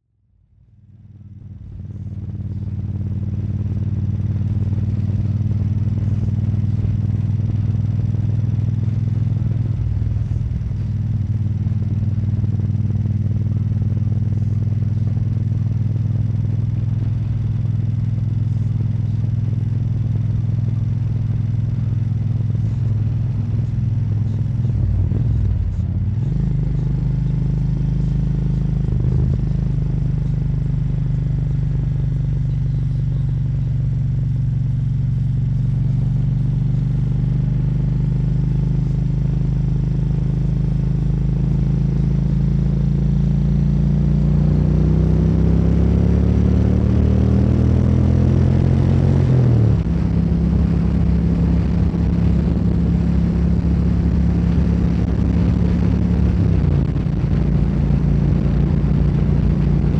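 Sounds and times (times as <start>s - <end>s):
motorcycle engine running: 0.5s - 59.9s.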